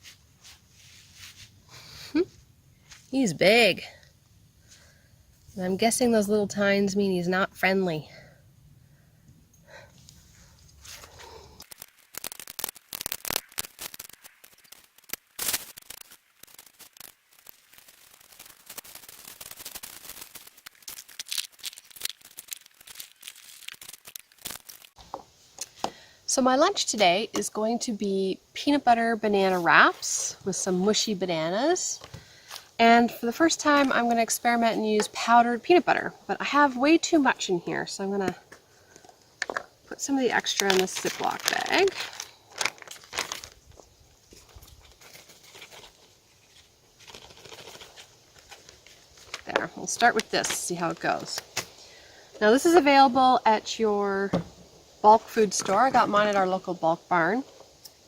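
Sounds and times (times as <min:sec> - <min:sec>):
crinkling and rustling: 0:10.0 - 0:25.8, 0:33.3 - 0:35.3, 0:38.2 - 0:51.8.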